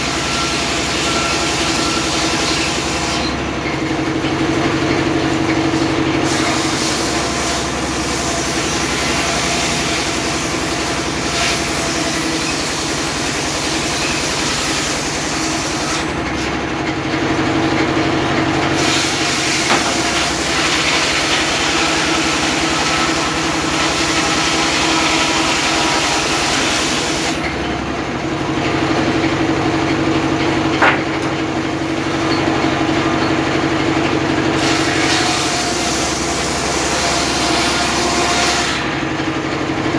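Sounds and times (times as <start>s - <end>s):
circular saw whining: 0.0s - 3.6s, 17.3s - 38.2s
saw cutting wood hiss: 18.7s - 27.5s.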